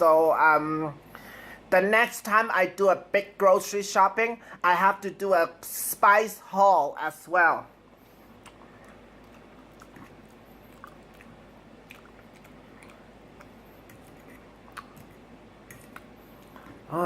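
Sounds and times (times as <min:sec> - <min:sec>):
person chewing food: 0:08.1 - 0:16.9.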